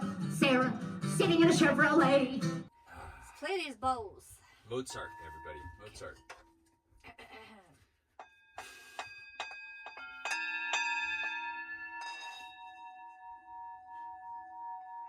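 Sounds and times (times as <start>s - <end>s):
singing bowls ringing: 8.3s - 15.0s.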